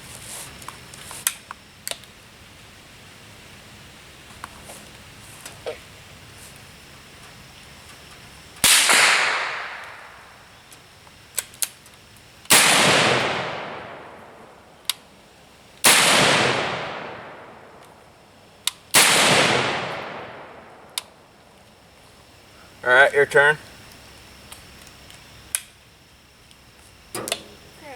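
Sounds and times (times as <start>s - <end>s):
gunshots with echo: 8.7s - 10.2s, 12.5s - 14.3s, 15.9s - 17.6s, 19.0s - 20.6s.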